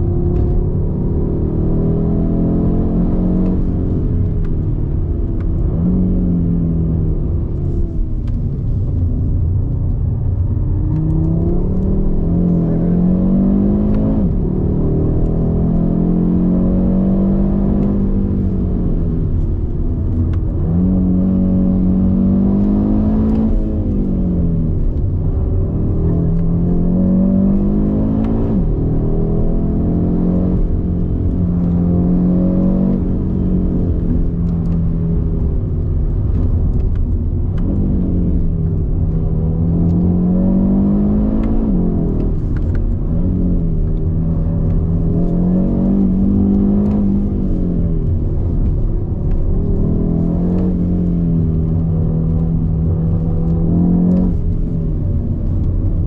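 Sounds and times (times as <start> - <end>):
car engine accelerating: 0.0 - 56.0
tyre and road noise: 0.0 - 56.0.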